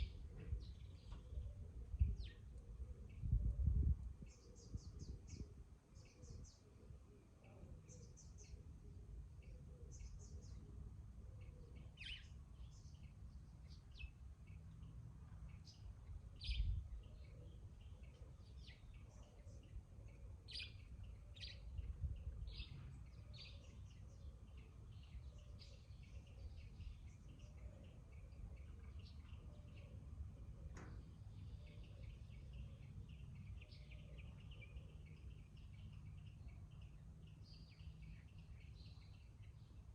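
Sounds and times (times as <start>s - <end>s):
birds chirping: 11.4s - 39.9s.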